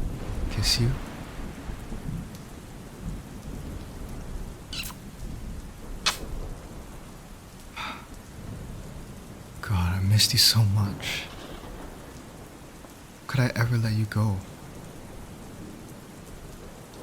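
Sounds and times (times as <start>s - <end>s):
steady rain: 0.0s - 17.0s
lip smacks: 4.8s - 5.0s, 6.1s - 6.3s.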